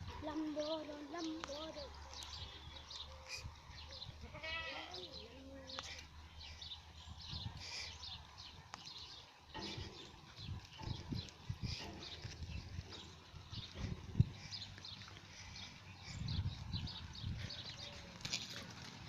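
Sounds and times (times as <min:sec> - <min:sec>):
goat bleating: 0:04.2 - 0:05.1.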